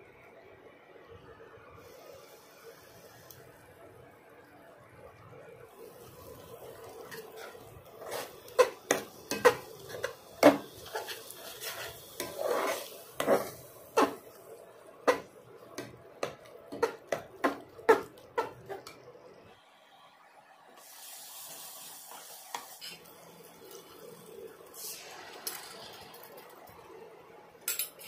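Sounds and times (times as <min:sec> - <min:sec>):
metal spoon stirring in pot: 0:06.2 - 0:19.0, 0:22.5 - 0:23.0.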